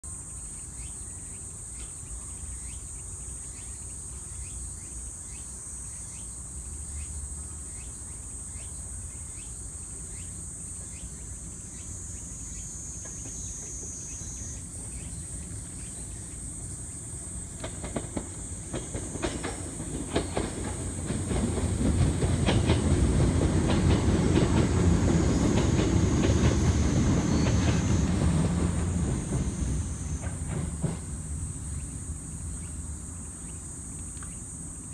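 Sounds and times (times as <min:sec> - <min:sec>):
cicadas buzzing: 0:00.0 - 0:34.9
train wheels clacking over joints: 0:17.5 - 0:31.4.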